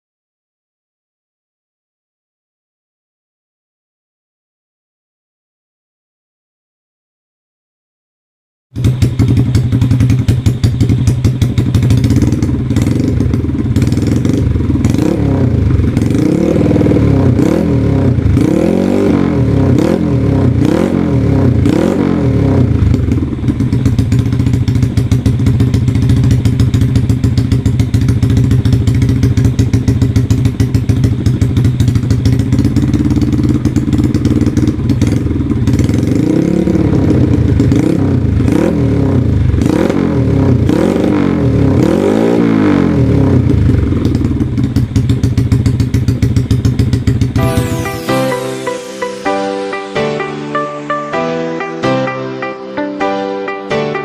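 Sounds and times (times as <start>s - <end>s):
motorcycle engine idling and revving: 8.7s - 48.1s.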